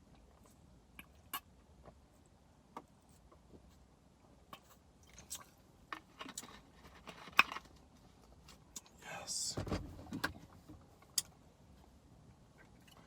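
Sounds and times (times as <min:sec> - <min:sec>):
chewing and mouth clicks: 0:04.5 - 0:05.6.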